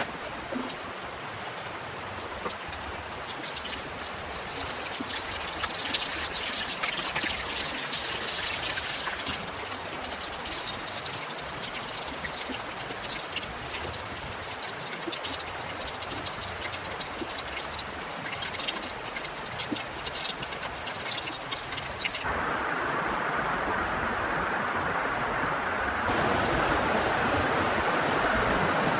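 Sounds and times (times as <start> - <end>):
heavy rain falling: 22.1 - 28.9.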